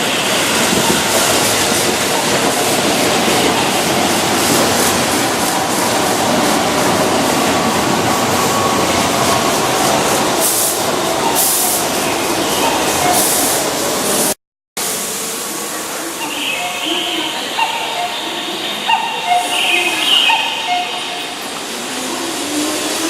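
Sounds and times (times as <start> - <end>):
electric train rail noise: 0.0 - 23.0.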